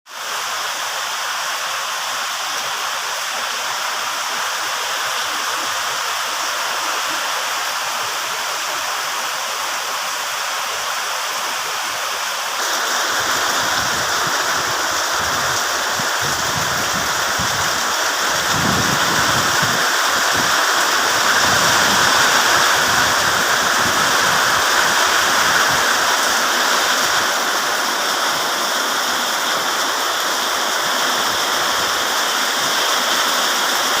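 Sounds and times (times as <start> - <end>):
heavy rain pouring: 0.1 - 34.0
strong wind: 12.6 - 34.0.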